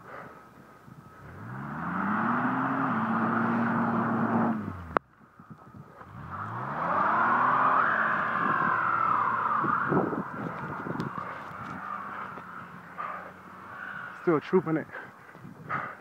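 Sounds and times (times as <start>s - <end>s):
wheels spinning whine: 0.4s - 15.8s
car engine revving: 1.1s - 14.9s.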